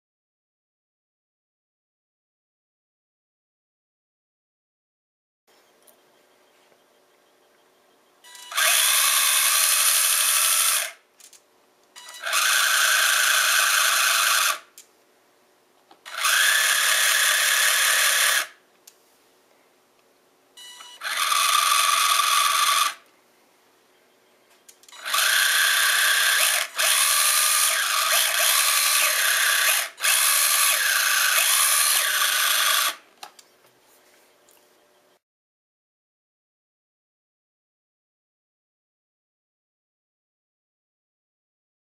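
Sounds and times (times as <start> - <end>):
toy car electric motor whining: 8.4 - 11.0, 12.2 - 14.7, 16.1 - 18.6, 21.0 - 23.0, 25.0 - 33.0.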